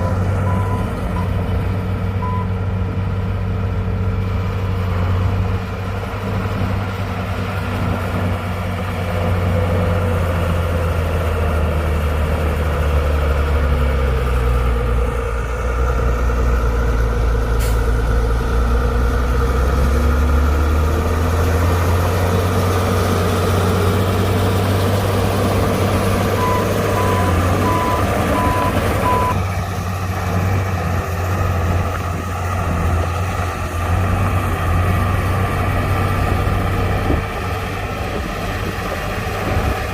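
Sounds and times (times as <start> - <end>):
heavy diesel machinery running: 0.0 - 39.9
reversing alarm beeping: 26.3 - 29.4.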